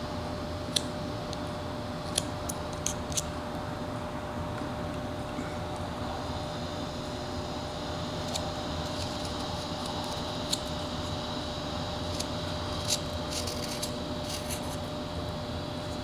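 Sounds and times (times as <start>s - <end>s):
background hum: 0.0s - 16.0s
knife shaving wood: 8.1s - 11.2s, 11.9s - 14.9s.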